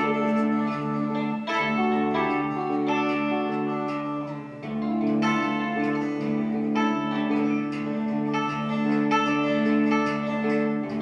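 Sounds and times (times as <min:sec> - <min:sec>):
guitar plucked notes and chords: 0:00.0 - 0:11.0
rock band playing: 0:00.0 - 0:11.0.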